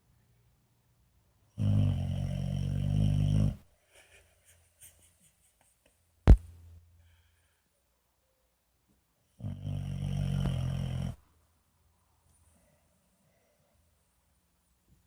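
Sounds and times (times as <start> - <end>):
puppy snoring: 1.6 - 3.7, 9.4 - 11.2.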